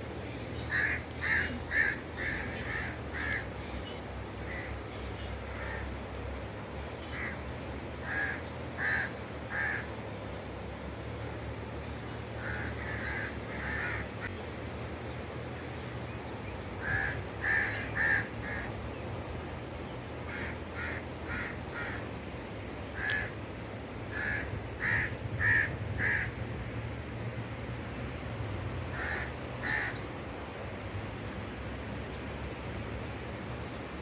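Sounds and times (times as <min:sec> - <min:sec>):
steady low hum: 0:00.0 - 0:34.0
bird calling: 0:00.3 - 0:06.1.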